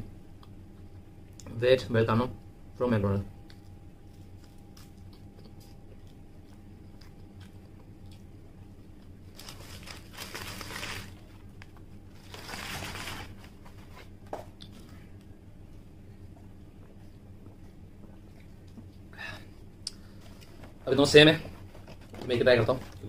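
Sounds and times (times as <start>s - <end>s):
person chewing: 3.4s - 9.9s.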